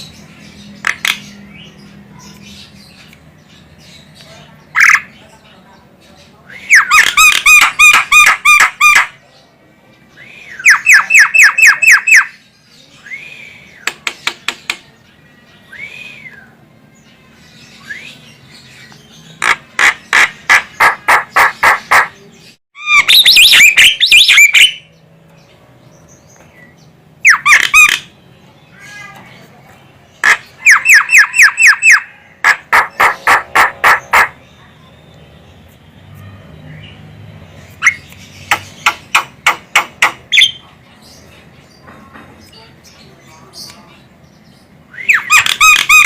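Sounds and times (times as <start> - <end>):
myna harsh chattering calls: 6.7 - 9.2, 19.2 - 22.2, 22.8 - 24.8, 30.2 - 34.6.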